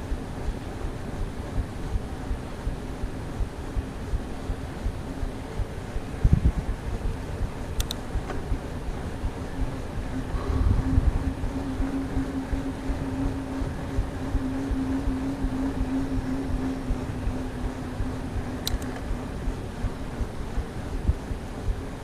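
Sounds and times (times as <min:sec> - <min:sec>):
wind buffeting microphone: 0:05.6 - 0:21.8
sharp click: 0:07.8 - 0:08.4, 0:18.6 - 0:19.1.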